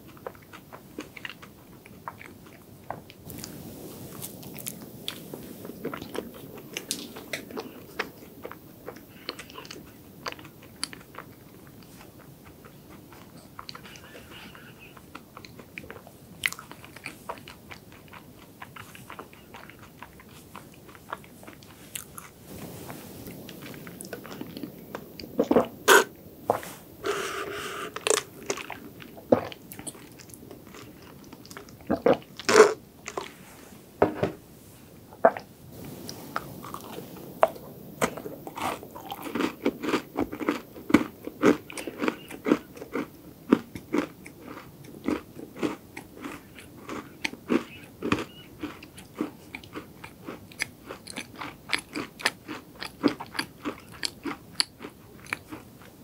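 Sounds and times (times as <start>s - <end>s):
chewing and crunching: 0.0s - 33.4s, 35.2s - 56.0s
sipping through a straw: 25.4s - 28.3s.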